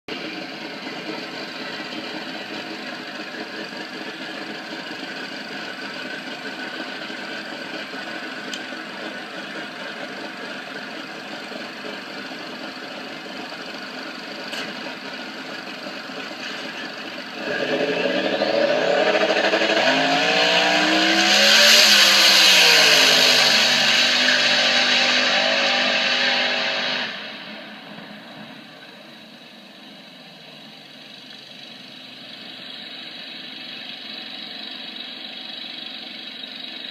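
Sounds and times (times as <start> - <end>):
high turbo whine: 0.1 - 36.9
dragster engine revving: 16.0 - 27.4.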